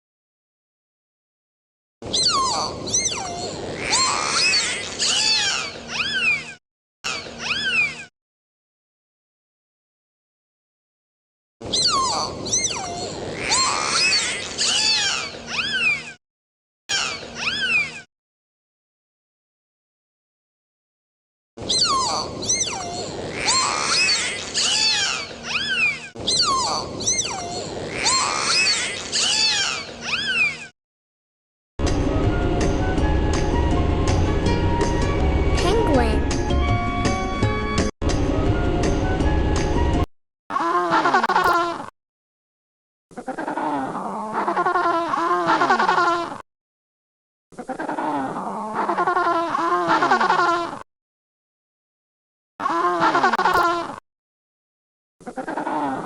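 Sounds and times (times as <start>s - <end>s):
cat meowing high-pitched: 5.2s - 6.6s, 7.3s - 8.1s, 14.8s - 16.2s, 17.3s - 18.1s, 29.3s - 30.7s.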